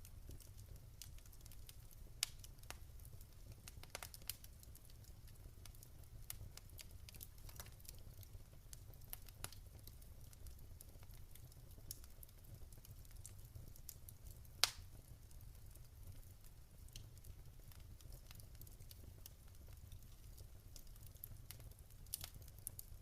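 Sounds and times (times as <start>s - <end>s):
low fire rumble: 0.0s - 23.0s
wood fire crackling: 0.0s - 23.0s.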